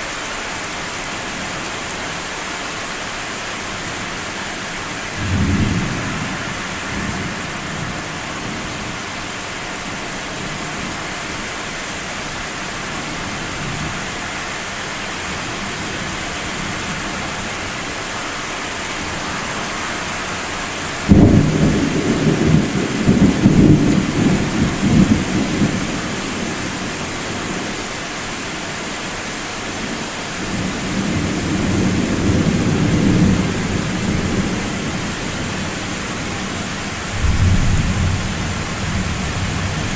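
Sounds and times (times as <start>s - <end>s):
steady rain hiss: 0.0s - 39.9s
thunderclap and rumble: 21.1s - 26.8s.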